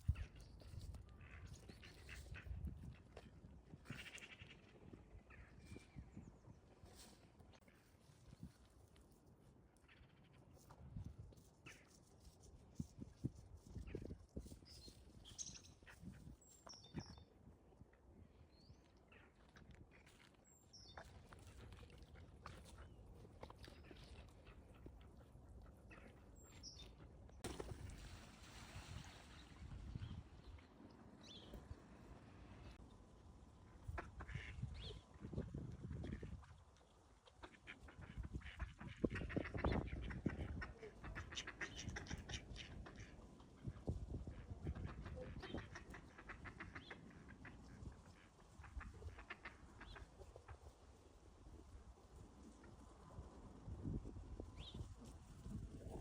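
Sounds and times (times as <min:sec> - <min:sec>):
ducks quacking: 0:44.7 - 0:50.5.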